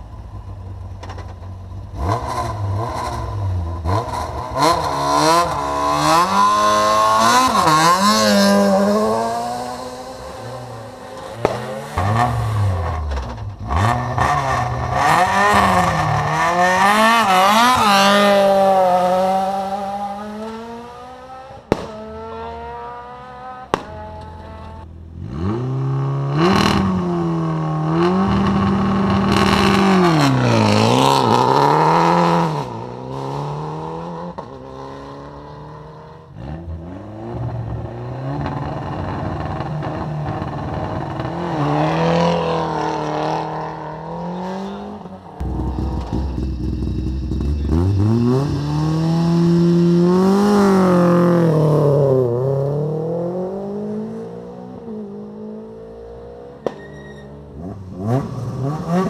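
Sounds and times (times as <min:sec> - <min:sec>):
rally car engine revving: 0:01.8 - 0:59.0
sharp crack: 0:11.1 - 0:13.5, 0:21.7 - 0:22.2, 0:23.7 - 0:24.3, 0:56.6 - 0:56.9.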